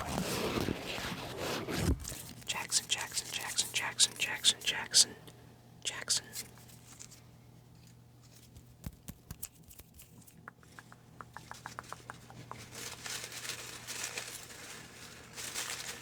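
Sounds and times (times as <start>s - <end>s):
paper rustling and crinkling: 0.0s - 4.4s, 12.4s - 16.0s.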